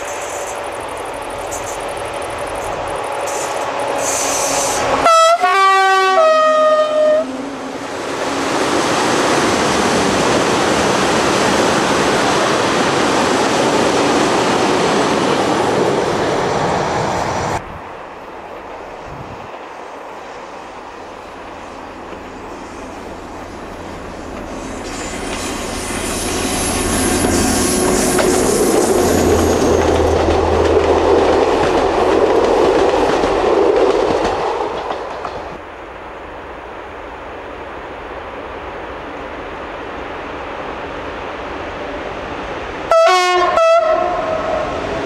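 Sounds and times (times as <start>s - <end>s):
freight train rumbling: 0.0s - 45.0s
outdoor background: 0.0s - 45.0s
locomotive horn blasts: 4.6s - 7.5s, 42.9s - 44.6s.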